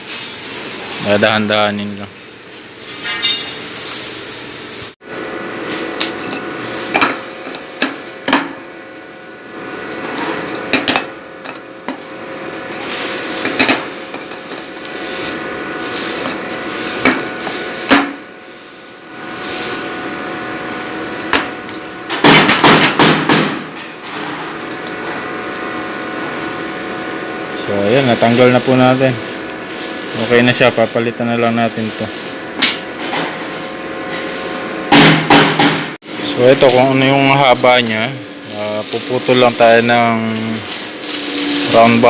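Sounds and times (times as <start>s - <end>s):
steady hum: 0.0s - 42.0s
hand tools clinking on metal: 3.0s - 3.6s.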